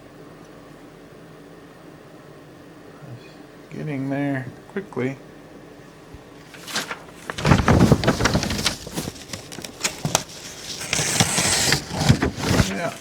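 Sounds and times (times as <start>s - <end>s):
knocks and handling clatter: 6.6s - 13.0s.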